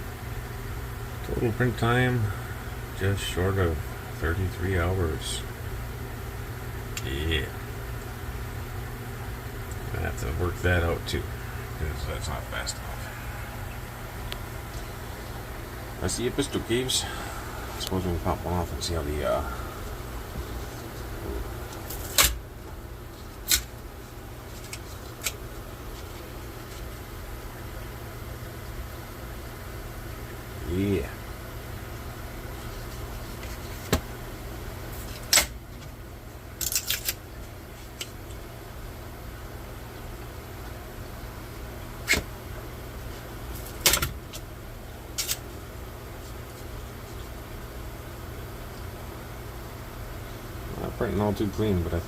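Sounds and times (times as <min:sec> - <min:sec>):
steady low hum: 0:00.0 - 0:52.0
plastic cracking: 0:36.6 - 0:37.2.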